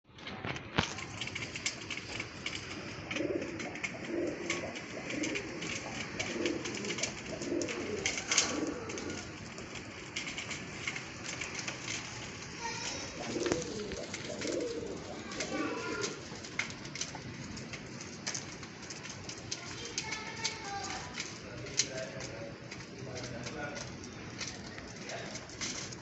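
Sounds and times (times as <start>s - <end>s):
pigeons cooing: 1.1s - 19.1s.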